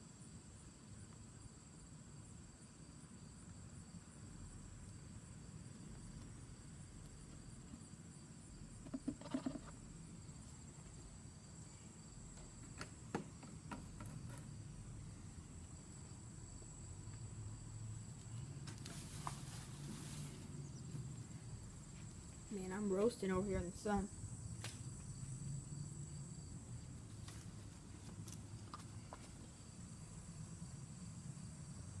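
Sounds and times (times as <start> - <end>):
high-pitched insect trill: 13.8 - 27.4.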